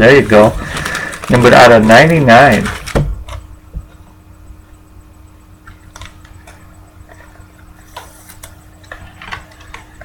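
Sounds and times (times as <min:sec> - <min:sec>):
steady low hum: 0:00.0 - 0:10.0
trading cards clicking and rustling: 0:00.1 - 0:03.4, 0:05.6 - 0:10.0.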